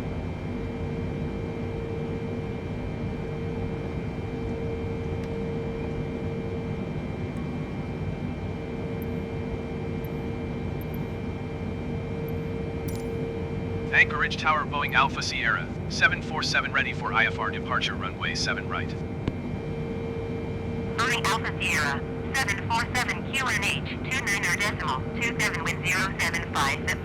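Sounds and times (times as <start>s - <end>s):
jet engines idling: 12.0s - 27.0s.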